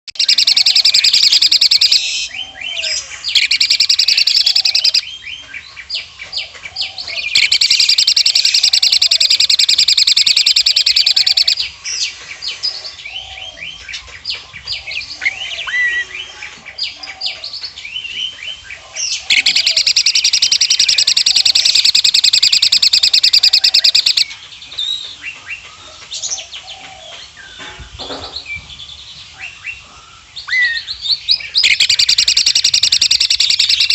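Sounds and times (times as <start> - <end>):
starling rattling song: 0.1 - 2.2, 3.0 - 5.1, 7.2 - 11.8, 19.2 - 25.3, 31.6 - 33.9
bird chirps and whistles: 0.1 - 5.1, 7.3 - 11.7, 19.3 - 24.4, 30.5 - 33.9.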